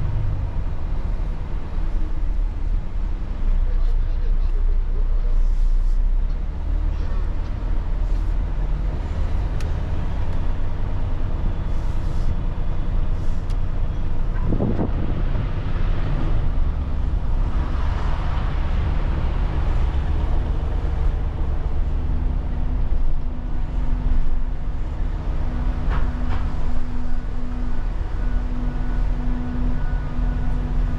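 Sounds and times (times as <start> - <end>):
truck engine rumbling: 0.0 - 30.9.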